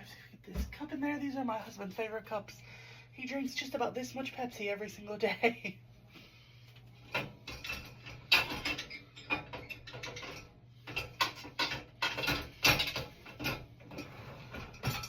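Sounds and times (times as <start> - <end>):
dishes clattering into dishwasher racks: 7.1 - 15.0.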